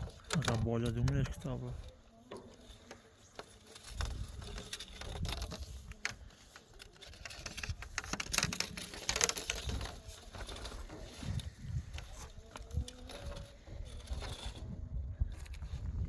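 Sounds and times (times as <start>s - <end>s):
rustling: 0.0s - 16.0s.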